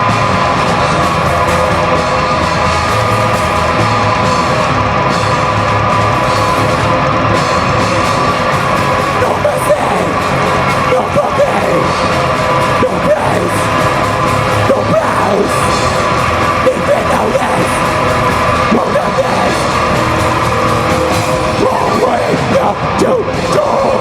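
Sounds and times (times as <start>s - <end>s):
rock band playing live: 0.0s - 24.0s
person yelling over music: 8.0s - 24.0s.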